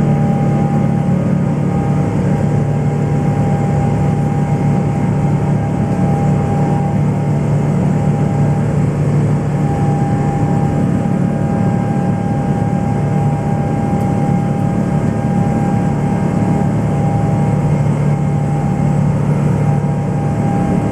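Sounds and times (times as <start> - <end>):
jet engine drone and whine: 0.0 - 20.9.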